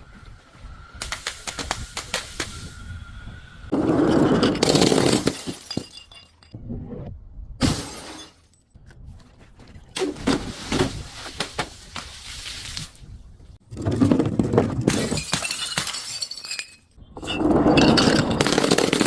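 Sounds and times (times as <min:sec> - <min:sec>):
glass bottles shattering: 0:04.0 - 0:06.6, 0:07.6 - 0:08.6, 0:14.8 - 0:19.0.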